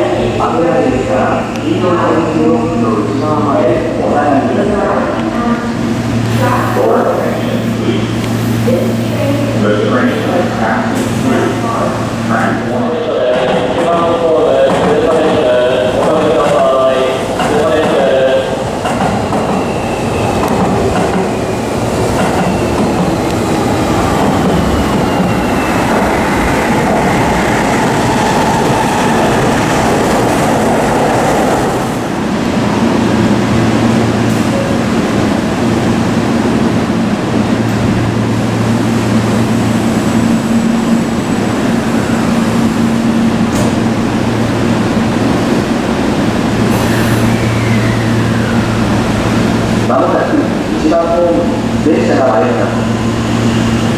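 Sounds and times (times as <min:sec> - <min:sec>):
electric train low hum: 0:00.0 - 0:53.9
train running rumble: 0:00.0 - 0:53.9
faint falling squeals: 0:46.8 - 0:49.0.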